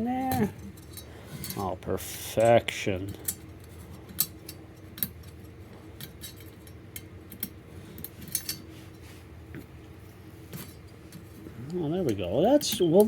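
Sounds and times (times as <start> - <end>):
low steady hum: 0.0 - 13.0
metal parts clicking and clinking: 0.2 - 1.6, 3.1 - 8.6.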